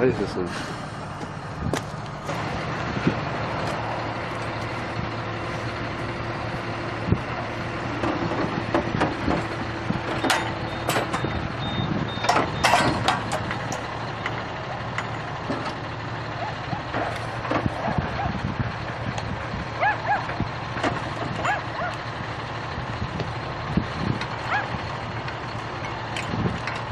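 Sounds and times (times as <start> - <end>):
diesel engine running: 0.0 - 26.9
sharp metal knocks and clanks: 8.0 - 11.4, 12.2 - 15.8.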